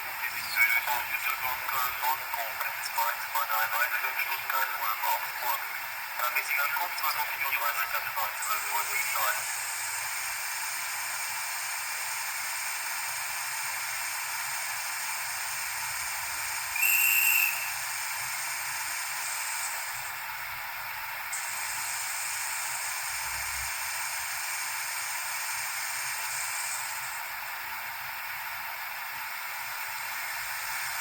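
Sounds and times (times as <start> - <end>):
steady hiss from small speaker: 0.2 - 10.3
short high whistle: 16.8 - 17.8.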